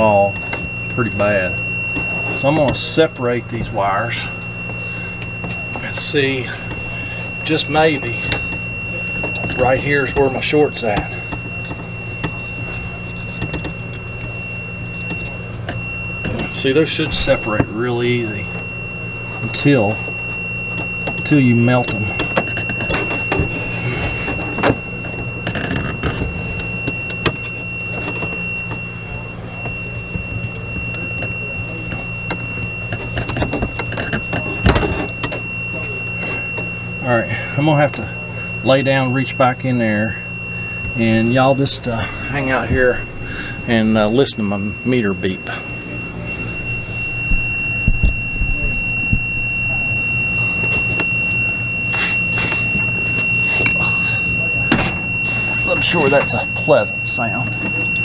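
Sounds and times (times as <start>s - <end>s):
low steady hum: 0.0s - 58.0s
multimeter beeper steady tone: 0.0s - 58.0s
knocks and scrapes of wires: 46.5s - 49.9s, 50.5s - 56.3s.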